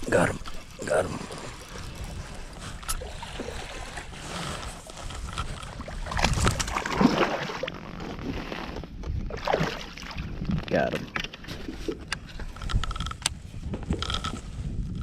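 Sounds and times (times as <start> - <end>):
water lapping at kayak: 0.0 - 15.0
wind buffeting microphone: 9.0 - 15.0.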